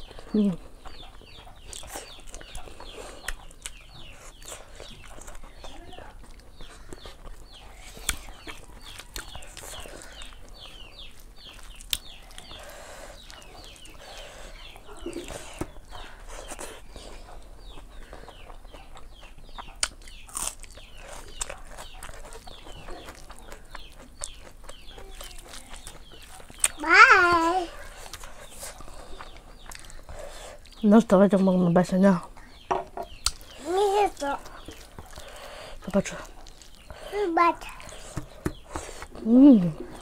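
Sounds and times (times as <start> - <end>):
birds chirping: 0.0 - 40.0
hands clicking and smacking: 37.7 - 39.2.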